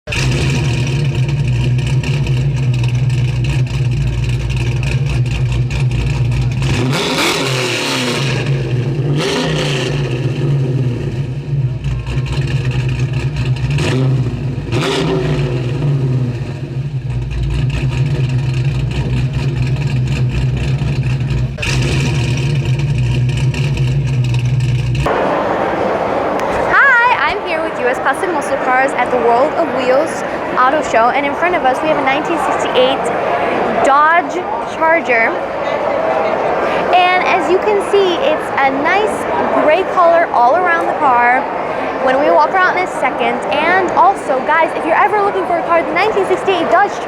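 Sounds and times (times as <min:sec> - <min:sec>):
car engine idling: 0:00.1 - 0:35.6
car engine revving: 0:00.1 - 0:47.0.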